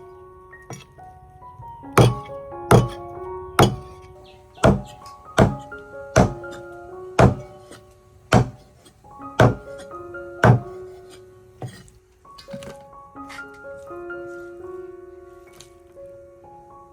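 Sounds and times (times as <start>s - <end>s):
background music: 0.0s - 16.9s
knife chopping on wooden board: 2.0s - 3.0s, 3.6s - 3.9s, 4.6s - 6.6s, 7.2s - 7.5s, 8.3s - 9.7s, 10.4s - 10.8s, 11.6s - 11.8s.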